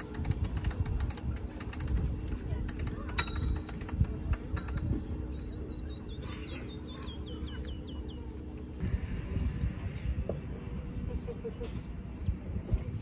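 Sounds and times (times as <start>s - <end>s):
bird chirping: 5.3s - 8.5s.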